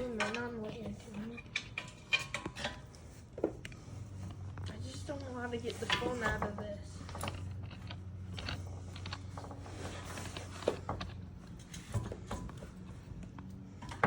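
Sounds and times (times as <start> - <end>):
light mechanical clicks and knocks: 0.0 - 14.0
steady low hum: 0.0 - 14.0.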